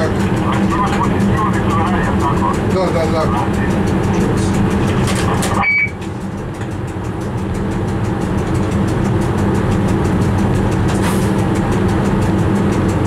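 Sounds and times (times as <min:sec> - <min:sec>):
train cab rumble and hum: 0:00.0 - 0:13.0
short high beep: 0:05.6 - 0:06.0.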